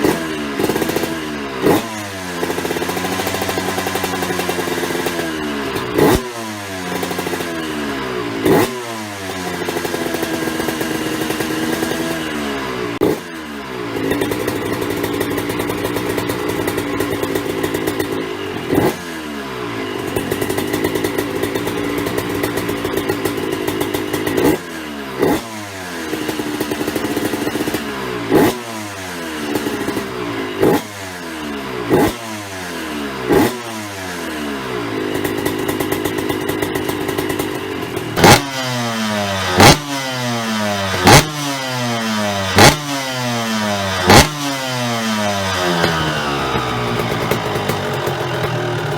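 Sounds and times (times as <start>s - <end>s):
two-stroke motorcycle engine revving: 0.0s - 48.9s.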